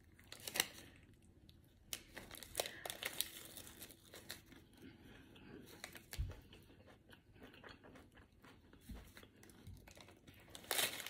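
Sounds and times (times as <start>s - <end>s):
mouth chewing sounds: 5.4s - 10.4s.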